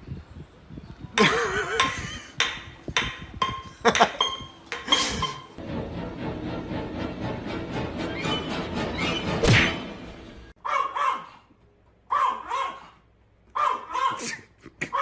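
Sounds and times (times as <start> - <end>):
dog barking: 10.6 - 11.5, 12.1 - 14.3.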